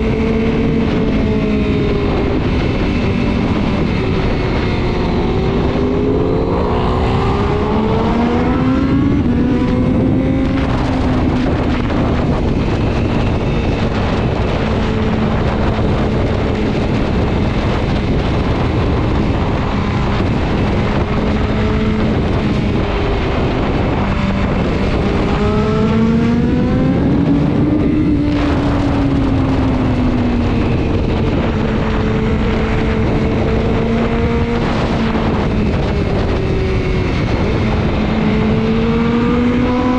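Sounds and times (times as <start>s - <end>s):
heavy wind noise: 0.0s - 39.9s
motorcycle engine accelerating: 0.0s - 39.9s.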